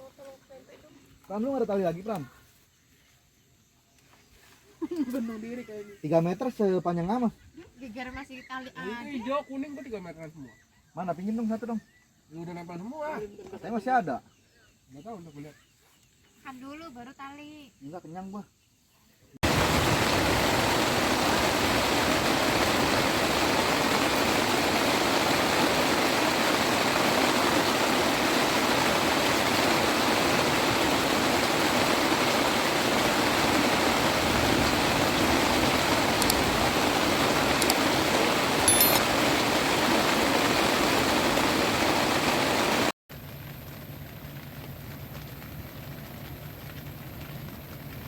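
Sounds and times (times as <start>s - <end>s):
heavy rain pouring: 19.4s - 48.0s.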